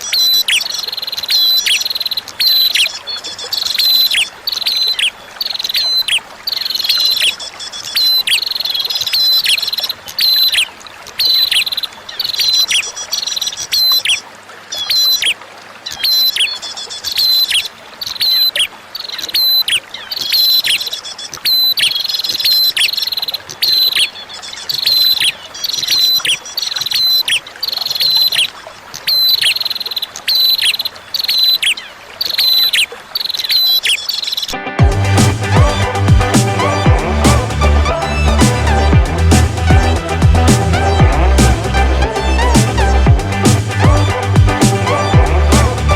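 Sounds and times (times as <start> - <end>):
bird chirping song: 0.0 - 45.9
flowing water hiss: 0.0 - 45.9.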